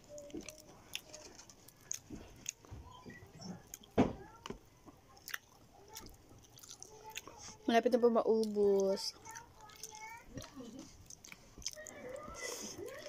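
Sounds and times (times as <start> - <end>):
soft chewing: 0.0 - 13.0.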